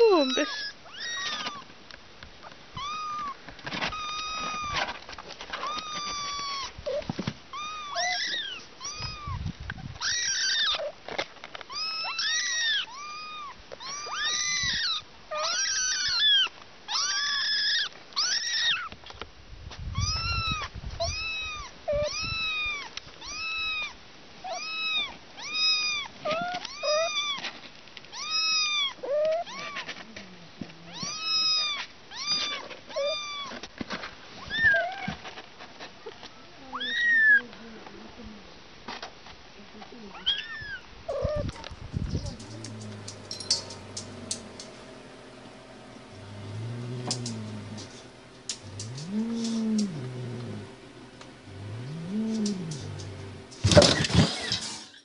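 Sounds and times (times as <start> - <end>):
kittens meowing: 0.0 - 1.6, 2.8 - 4.8, 5.6 - 9.4, 10.0 - 10.9, 11.7 - 18.9, 20.0 - 23.9, 30.9 - 33.5, 40.2 - 44.6, 47.1 - 53.6.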